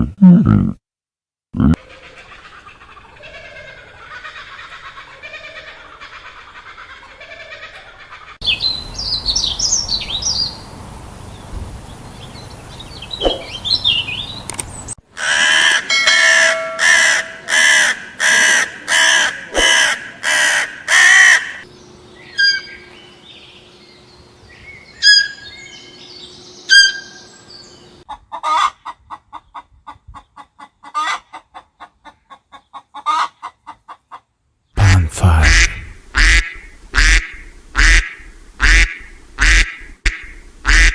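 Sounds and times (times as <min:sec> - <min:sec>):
bird calls: 0:08.4 - 0:15.0, 0:21.7 - 0:28.0.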